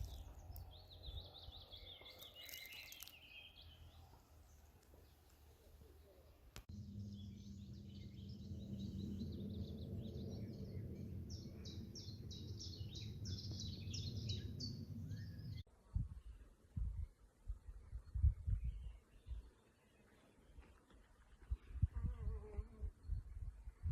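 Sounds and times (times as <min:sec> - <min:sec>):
small birds chirping: 0:00.0 - 0:20.9
low rumble: 0:06.7 - 0:16.2.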